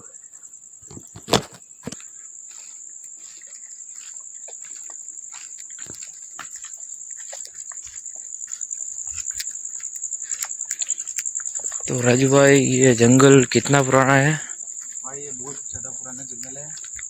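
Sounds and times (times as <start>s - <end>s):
crickets chirring: 0.0s - 17.0s
footsteps crunching: 0.8s - 17.0s.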